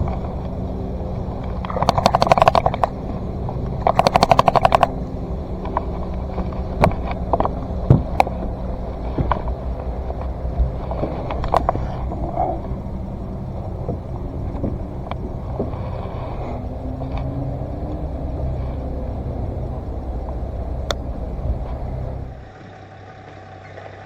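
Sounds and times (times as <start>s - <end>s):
rapid clicking: 0.0s - 17.6s
boat motor running: 0.0s - 24.0s.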